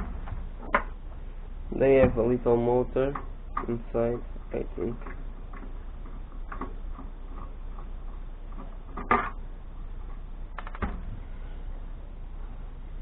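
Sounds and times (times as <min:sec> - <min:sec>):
clicks and knocks of hard parts: 0:08.5 - 0:09.4.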